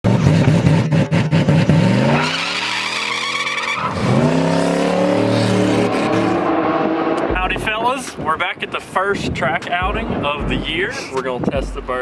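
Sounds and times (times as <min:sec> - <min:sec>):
car engine accelerating hard: 0:00.1 - 0:07.8.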